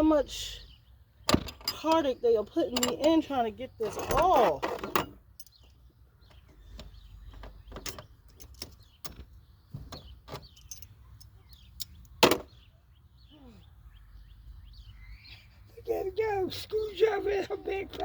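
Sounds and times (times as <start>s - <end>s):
hand tools clicking and knocking: 1.3s - 12.4s.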